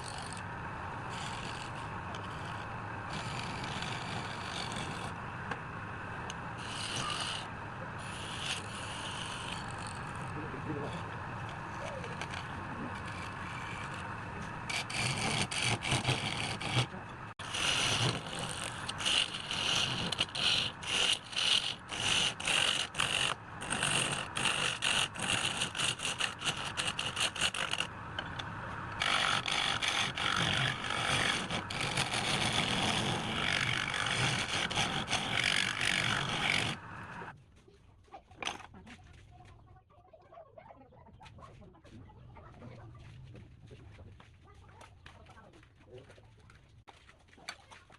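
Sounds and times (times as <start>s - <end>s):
hand tool scraping wood: 0.0s - 0.4s, 1.1s - 5.6s, 6.2s - 37.3s.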